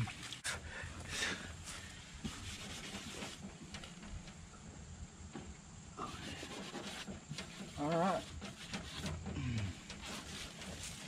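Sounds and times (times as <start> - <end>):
scouring pad scrubbing metal: 2.2 - 3.8, 6.0 - 11.0.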